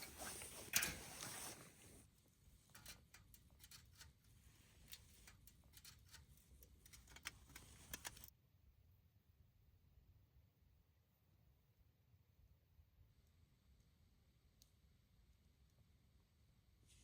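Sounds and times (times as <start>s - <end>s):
light clicks and taps: 2.7s - 8.3s.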